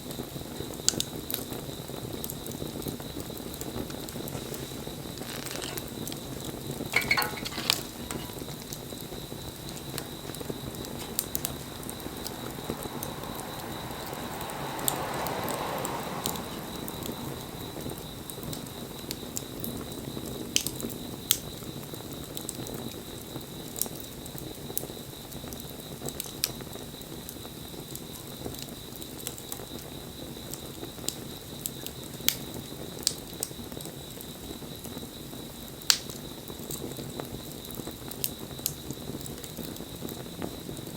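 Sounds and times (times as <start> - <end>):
fire crackles and pops: 0.0 - 40.9
flame rushing: 0.5 - 20.7.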